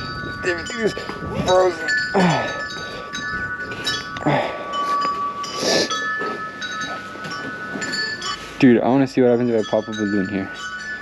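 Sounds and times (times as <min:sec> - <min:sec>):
wind chimes ringing: 0:00.0 - 0:11.0.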